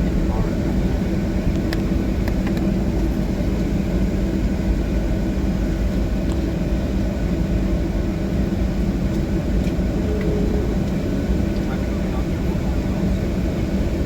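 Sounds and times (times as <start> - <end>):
constant cabin hum: 0.0 - 14.0
jet engines low rumble: 0.0 - 14.0.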